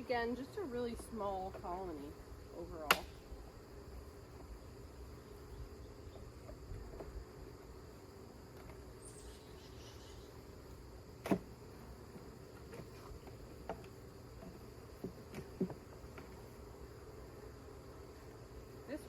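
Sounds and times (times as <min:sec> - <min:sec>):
honeybees humming: 0:00.0 - 0:19.0
wooden hive frames knocking: 0:11.2 - 0:16.5.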